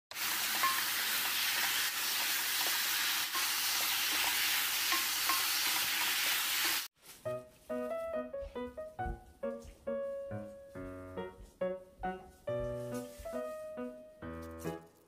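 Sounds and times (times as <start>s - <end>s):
meat sizzling in a hot pan: 0.1s - 6.9s.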